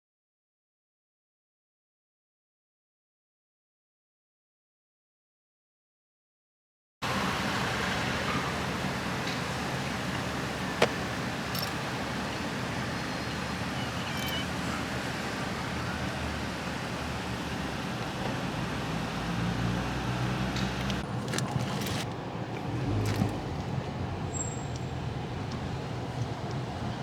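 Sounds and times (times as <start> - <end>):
engine rumble: 7.0 - 27.0.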